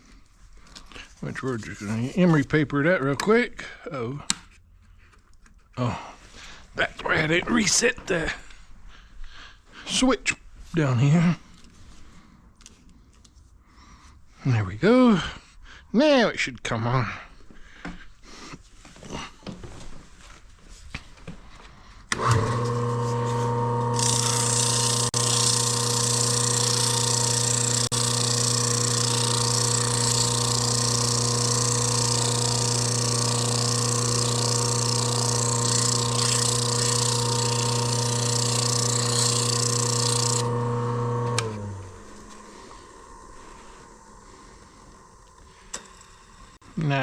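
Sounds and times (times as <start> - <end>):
electric motor humming: 22.1 - 46.6
emery paper scraping metal shaft: 22.2 - 42.6.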